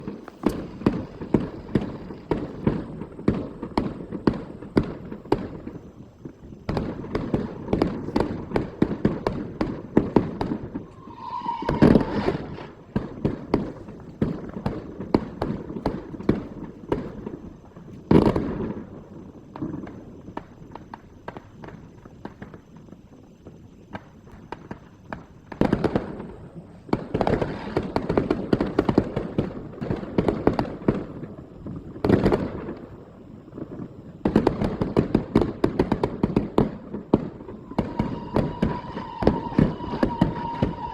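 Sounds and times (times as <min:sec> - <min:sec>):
firecrackers banging: 0:00.0 - 0:40.9
heavy firework blasts: 0:00.0 - 0:40.9
brief pitched tone: 0:10.9 - 0:12.4.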